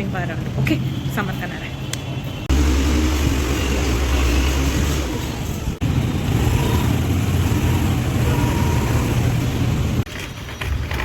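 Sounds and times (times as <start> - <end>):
road and wind noise: 0.0 - 11.0
vehicle engine hum: 2.5 - 11.0.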